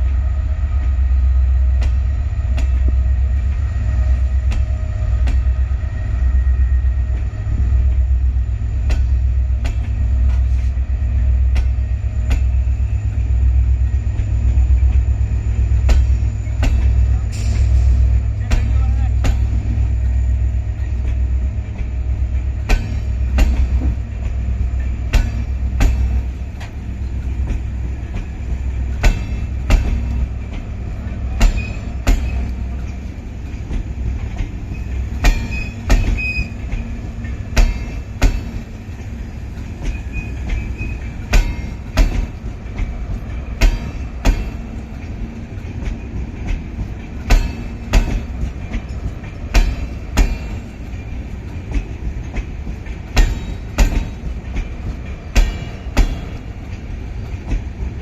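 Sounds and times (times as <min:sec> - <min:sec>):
low train rumble: 0:00.0 - 0:58.0
train wheels clacking over rail joints: 0:14.0 - 0:58.0
faint wheel squeal: 0:39.9 - 0:41.1.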